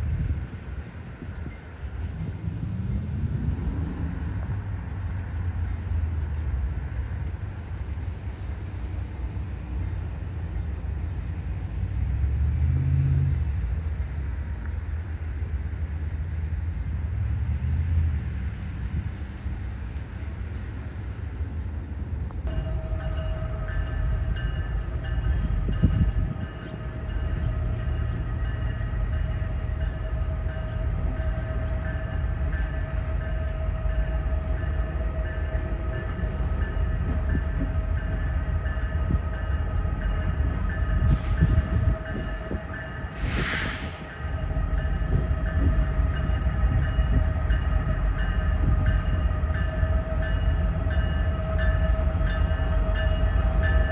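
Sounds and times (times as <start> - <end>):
train rumbling past: 0.0 - 53.9
steady ringing tones: 22.5 - 41.1
short hissing bursts: 43.2 - 44.1.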